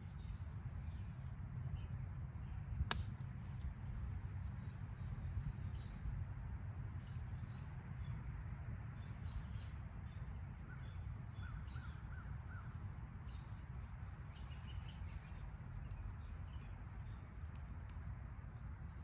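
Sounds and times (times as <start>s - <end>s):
wood fire crackling: 2.8s - 3.3s.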